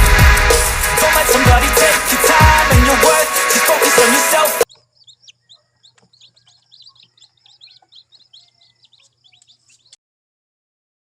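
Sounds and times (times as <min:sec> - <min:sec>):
birds chirping: 0:01.7 - 0:10.0.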